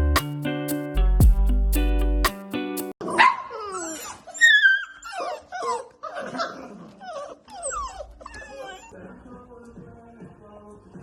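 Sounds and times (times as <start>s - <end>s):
music with steady beat: 0.0s - 2.9s
dog whining and yipping: 3.1s - 9.0s.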